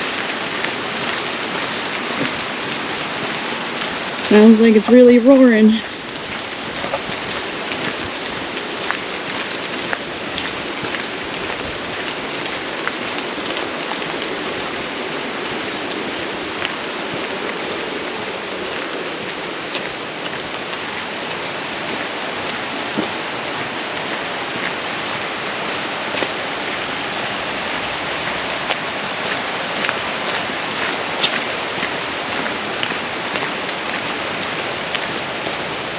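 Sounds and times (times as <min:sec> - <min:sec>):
raindrops ticking: 0:00.0 - 0:35.9
waterfall roaring: 0:00.0 - 0:35.9.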